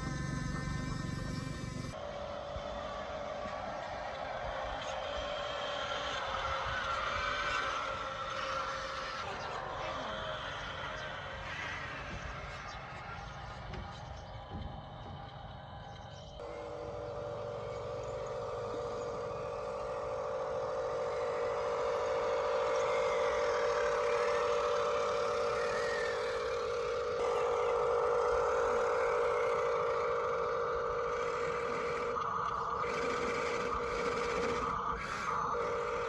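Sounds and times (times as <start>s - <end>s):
electric motor and gearbox whining: 0.0s - 2.0s, 9.0s - 36.0s.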